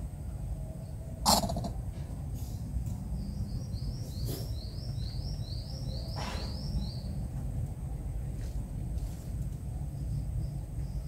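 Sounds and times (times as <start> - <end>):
steady low rumble: 0.0 - 11.0
small bird chirping: 3.1 - 7.2.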